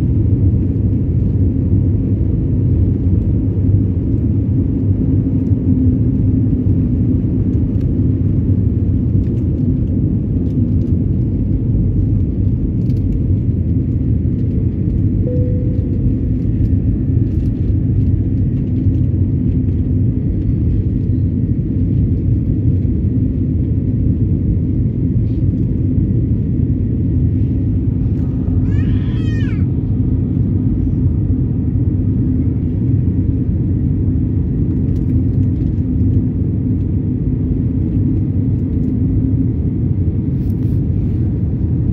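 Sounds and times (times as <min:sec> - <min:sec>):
jet engine cabin rumble: 0:00.0 - 0:41.9.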